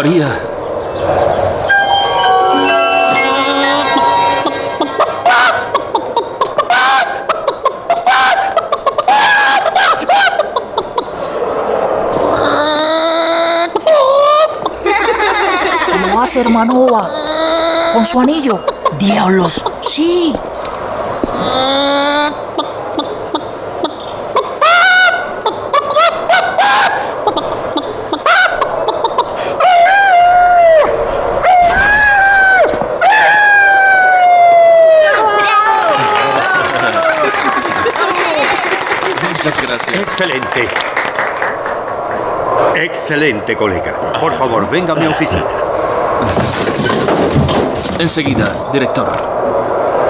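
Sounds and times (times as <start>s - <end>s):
children laughing: 2.7s - 11.5s, 12.2s - 20.1s, 21.4s - 42.1s.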